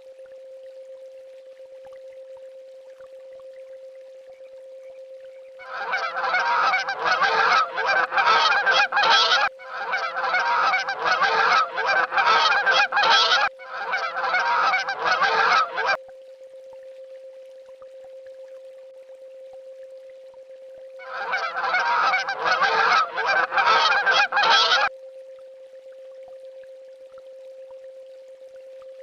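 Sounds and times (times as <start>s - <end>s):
faint hum-like tone: 0.0s - 29.0s
swans honking: 5.6s - 16.0s, 21.0s - 24.9s.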